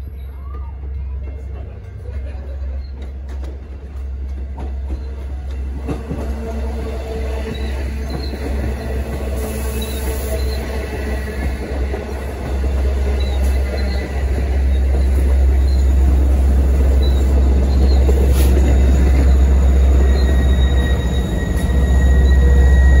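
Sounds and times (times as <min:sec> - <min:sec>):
diesel locomotive rumble: 0:00.0 - 0:23.0
faint high wheel squeal: 0:06.4 - 0:11.4, 0:12.9 - 0:23.0.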